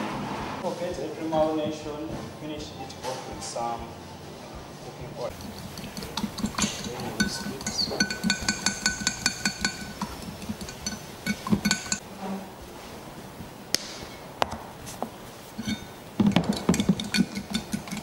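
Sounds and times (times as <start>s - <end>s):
whisk clinking against bowl: 5.3s - 12.0s, 15.6s - 18.0s.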